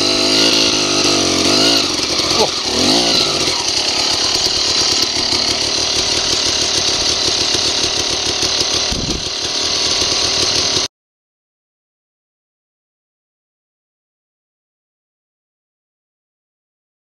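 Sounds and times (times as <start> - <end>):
dirt bike engine running: 0.0 - 10.9.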